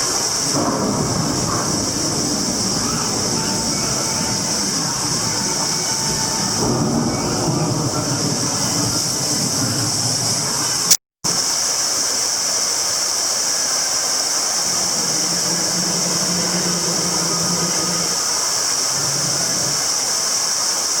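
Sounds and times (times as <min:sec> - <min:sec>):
steady high hissing: 0:00.0 - 0:21.0.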